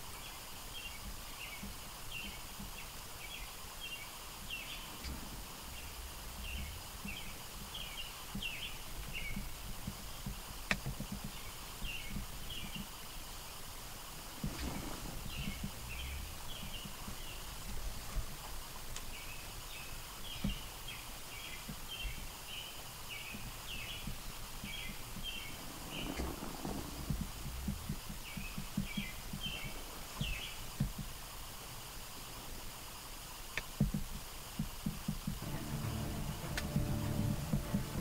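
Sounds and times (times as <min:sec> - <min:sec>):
songbird chirping: 0:00.0 - 0:31.1, 0:34.6 - 0:38.0
faint low knocks: 0:23.3 - 0:31.2, 0:33.8 - 0:38.0.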